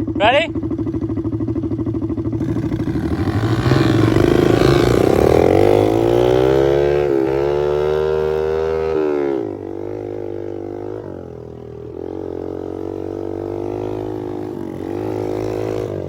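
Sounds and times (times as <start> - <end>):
pit bike engines revving: 0.0 - 16.0.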